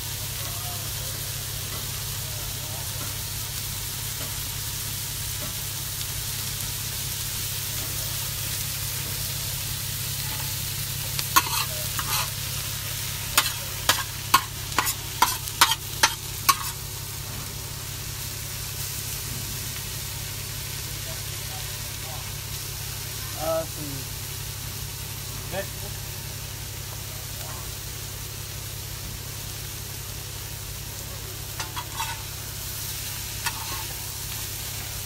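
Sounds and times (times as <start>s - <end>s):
vegetables sizzling in a pan: 0.0s - 35.0s
metal utensil clicking on pan: 11.4s - 12.3s, 13.4s - 16.8s, 31.6s - 32.3s, 33.4s - 33.9s.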